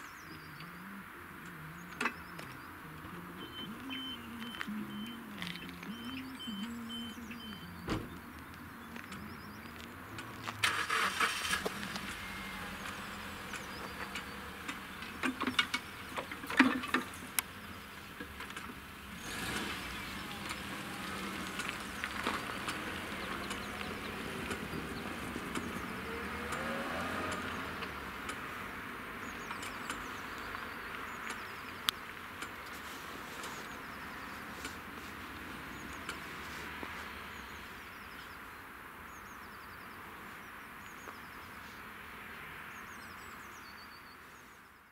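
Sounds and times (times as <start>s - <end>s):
vehicle engine pulling away: 9.0s - 38.4s.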